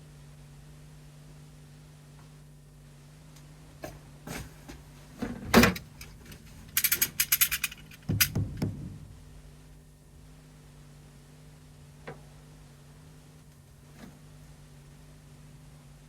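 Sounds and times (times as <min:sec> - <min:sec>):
rattle of small clicks: 0:05.7 - 0:09.0
loud thumps: 0:07.4 - 0:09.8.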